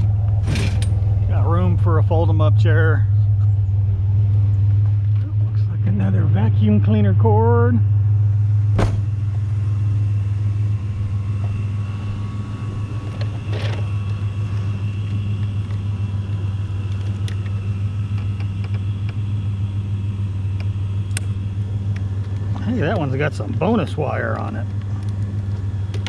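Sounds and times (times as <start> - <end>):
truck engine humming: 0.0 - 26.0.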